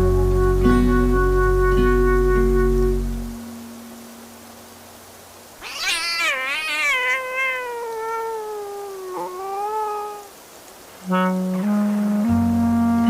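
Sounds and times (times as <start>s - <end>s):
cat meowing: 5.6s - 10.4s.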